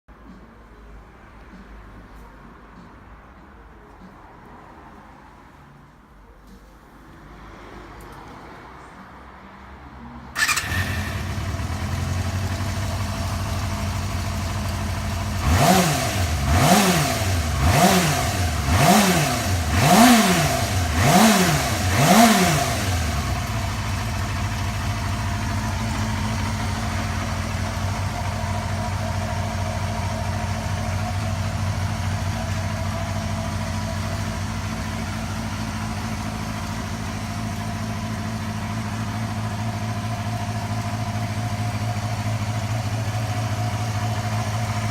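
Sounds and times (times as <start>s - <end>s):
motorcycle engine idling and revving: 9.8s - 44.9s.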